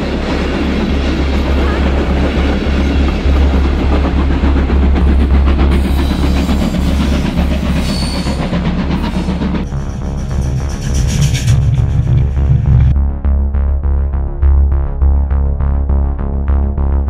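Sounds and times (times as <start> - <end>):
train wheels clattering over rails: 0.0 - 13.0.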